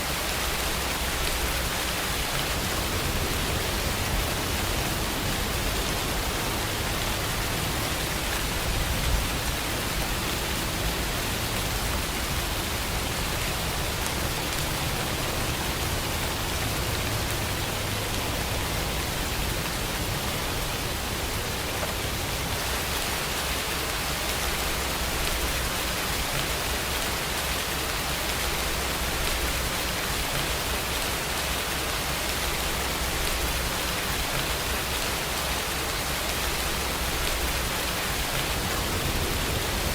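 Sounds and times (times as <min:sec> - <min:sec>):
rain hissing: 0:00.0 - 0:39.9
low rumble: 0:37.0 - 0:39.9.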